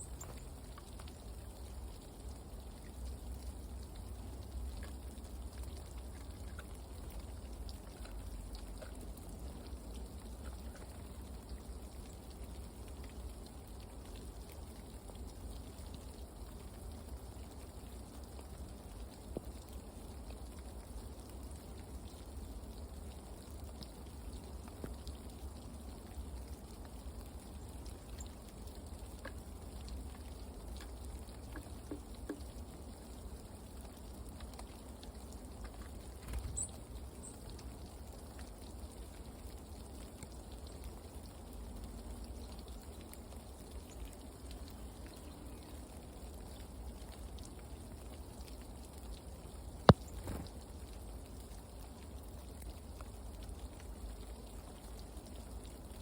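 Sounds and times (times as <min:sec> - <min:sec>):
light rain pattering: 0:00.0 - 0:56.0
faint ticks: 0:23.6 - 0:32.9, 0:33.8 - 0:38.9, 0:49.8 - 0:51.7.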